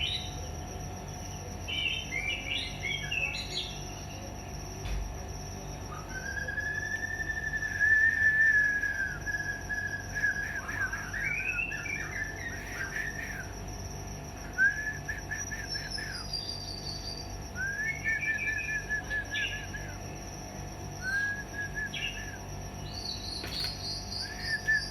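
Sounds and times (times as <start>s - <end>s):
bird singing whistled notes: 1.6s - 4.0s, 5.8s - 13.6s, 14.4s - 20.2s, 20.9s - 24.9s
sharp click: 23.3s - 24.0s.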